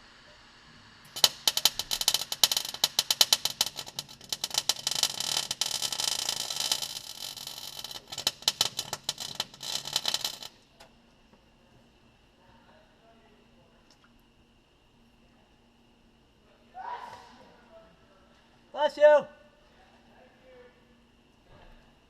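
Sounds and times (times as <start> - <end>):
arc welder crackling and popping: 1.0 - 11.0.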